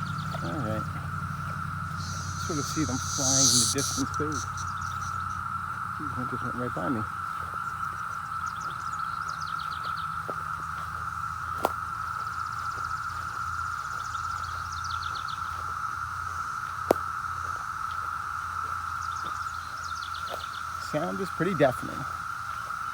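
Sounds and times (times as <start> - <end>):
cicadas droning: 0.0 - 22.9
bird chirps: 1.9 - 5.4
sharp clicks: 2.0 - 5.1.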